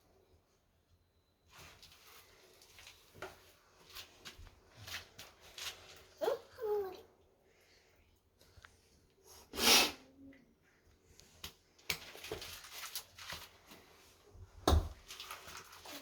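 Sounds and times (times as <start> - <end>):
person sneezing: 9.6 - 10.1
rustling: 12.0 - 14.3, 14.9 - 16.0.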